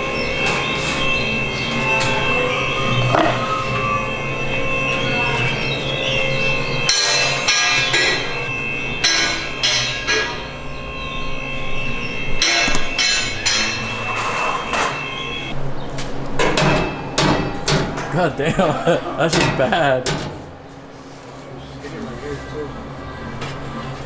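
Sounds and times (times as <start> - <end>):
loose exhaust pipe rattling: 0.0 - 15.5, 16.3 - 20.7.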